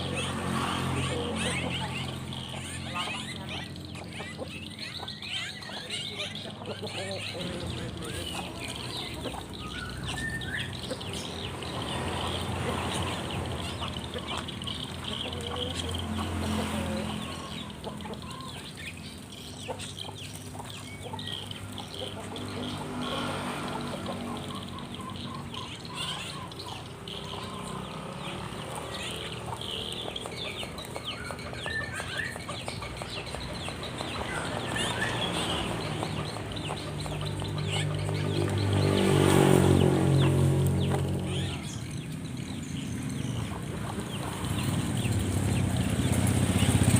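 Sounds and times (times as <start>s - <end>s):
chicken clucking: 0.0s - 25.4s
small birds chirping: 0.0s - 46.9s.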